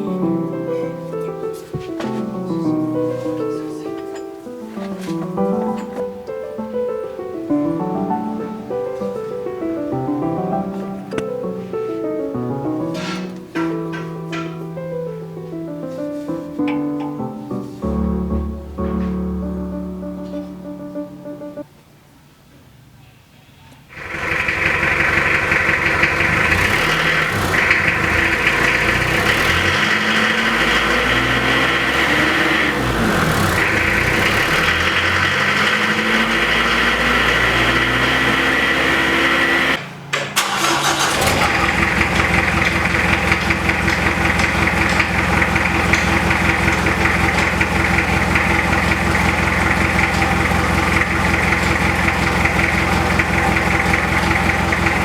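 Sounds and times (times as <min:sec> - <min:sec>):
diesel car engine revving: 0:24.0 - 0:39.8, 0:40.4 - 0:55.0.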